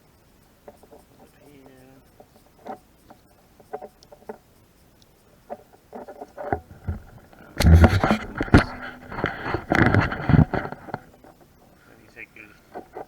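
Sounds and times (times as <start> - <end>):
rubbing and knocks: 5.5 - 11.4.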